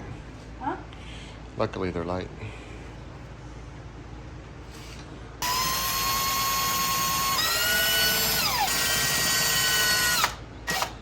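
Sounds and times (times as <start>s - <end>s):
electric drill motor whine: 5.4s - 11.0s.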